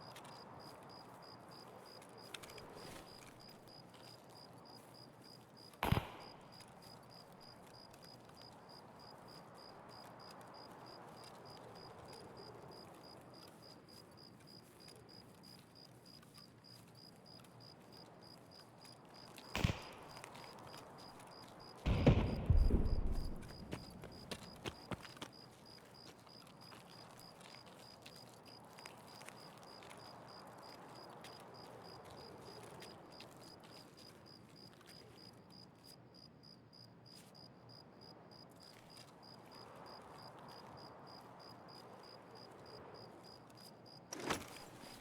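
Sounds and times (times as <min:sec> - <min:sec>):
pistol shots: 0:05.8 - 0:06.6, 0:19.6 - 0:20.4, 0:21.9 - 0:24.6.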